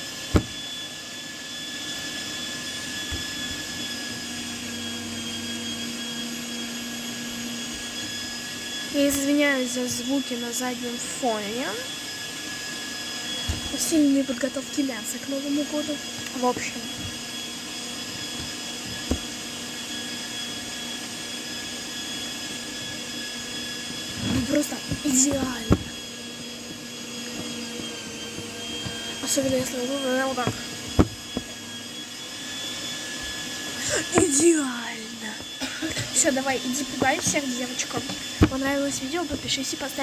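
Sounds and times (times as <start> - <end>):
kitchen appliance motor whining: 0.0 - 40.0.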